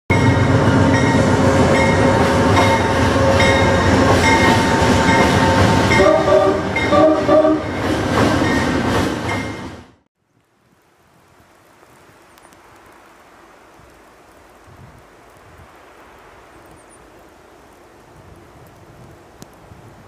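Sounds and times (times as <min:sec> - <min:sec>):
train horn blasts: 0:00.1 - 0:07.8
train wheels rumbling on rails: 0:00.1 - 0:10.0.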